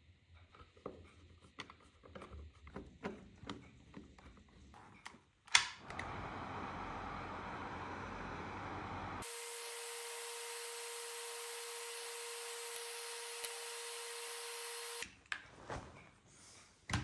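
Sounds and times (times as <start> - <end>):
hair dryer running: 5.8 - 15.1.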